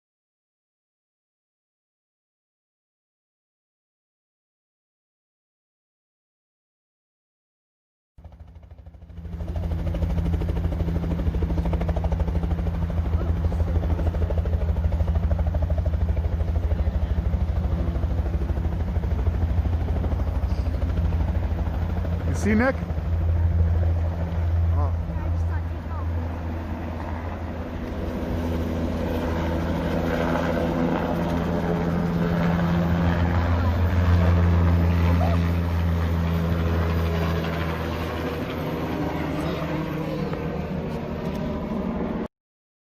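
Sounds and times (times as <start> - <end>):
helicopter engine drone: 8.2 - 42.3
helicopter rotor blades beating: 8.2 - 42.3.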